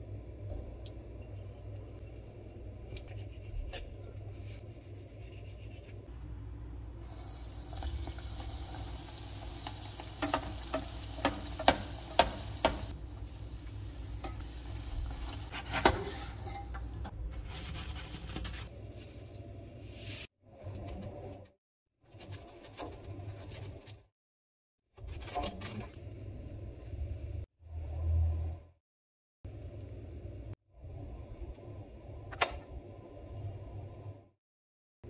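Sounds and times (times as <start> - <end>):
dough deep-frying in oil: 6.8 - 18.5.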